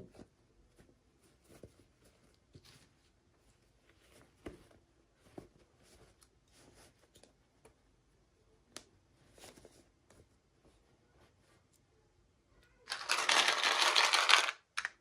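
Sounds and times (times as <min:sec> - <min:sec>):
packaging rustling: 0:12.9 - 0:14.9.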